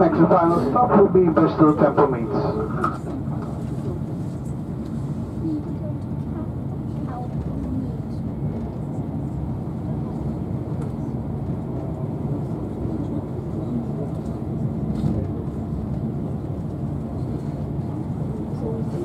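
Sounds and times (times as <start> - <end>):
train running noise inside coach: 0.0 - 19.0.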